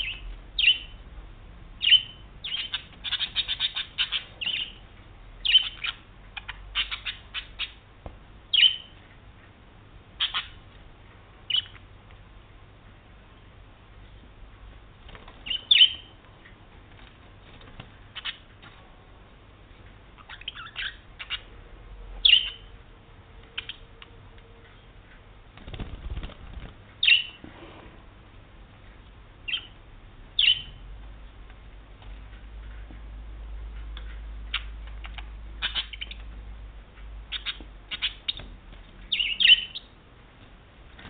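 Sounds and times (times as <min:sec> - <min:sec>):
budgie chirping: 0:01.8 - 0:04.8, 0:05.4 - 0:07.8, 0:08.5 - 0:09.0, 0:10.2 - 0:10.6, 0:15.4 - 0:16.2, 0:18.1 - 0:18.5, 0:20.1 - 0:21.5, 0:22.2 - 0:22.7, 0:27.0 - 0:27.4, 0:30.4 - 0:30.8, 0:39.1 - 0:40.0.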